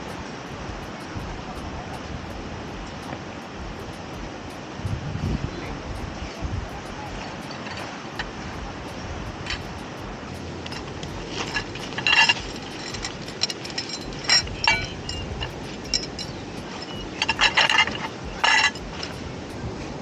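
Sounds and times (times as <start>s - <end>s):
steady background hiss: 0.0s - 20.0s
tableware clinking: 10.6s - 19.2s.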